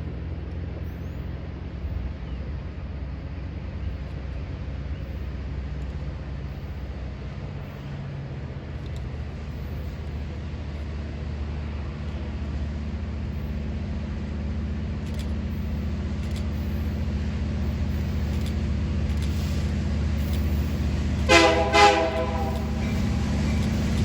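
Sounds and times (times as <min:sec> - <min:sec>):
diesel locomotive engine rumble: 0:00.0 - 0:24.0
locomotive air horn: 0:20.2 - 0:24.0.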